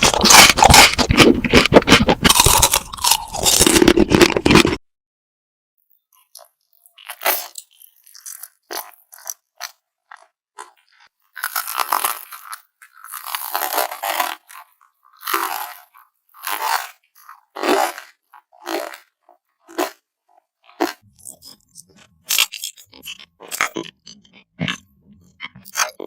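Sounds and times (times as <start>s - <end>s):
person chewing crunchy food: 0.0s - 4.8s, 6.1s - 26.0s
wet mouth clicks: 0.0s - 4.8s, 20.8s - 26.0s.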